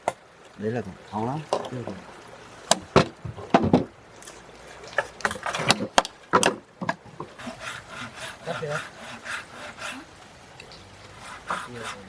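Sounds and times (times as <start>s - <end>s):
sharp knocks on wood: 2.7s - 3.9s, 5.0s - 7.4s.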